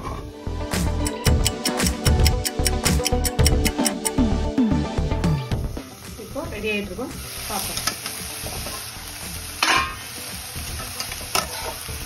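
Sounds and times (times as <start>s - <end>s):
beans sizzling: 5.2s - 12.0s.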